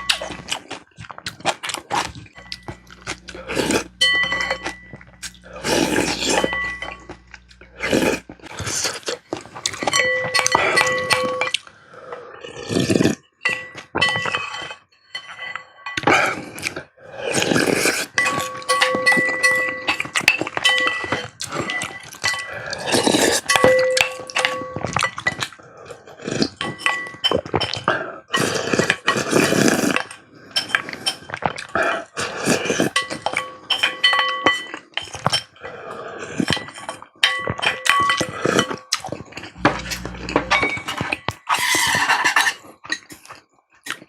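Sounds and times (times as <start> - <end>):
mouth sounds of eating: 0.0 - 4.0, 4.9 - 9.8, 10.4 - 13.2, 16.1 - 18.5, 21.4 - 23.5, 27.5 - 33.0
metal utensils clinking on bowl: 2.1 - 7.6, 9.4 - 11.7, 13.4 - 16.3, 18.1 - 25.6, 26.5 - 27.9, 32.9 - 35.7, 36.4 - 43.3.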